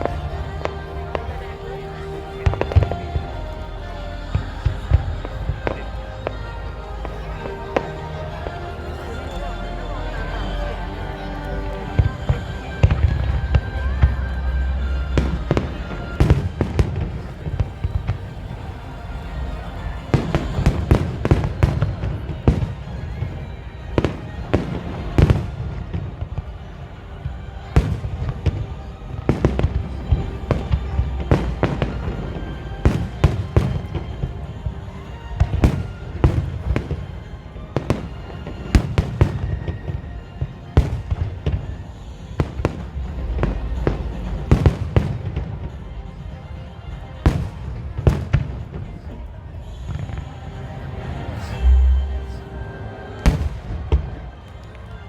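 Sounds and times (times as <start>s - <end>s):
faint music: 0.0s - 55.0s.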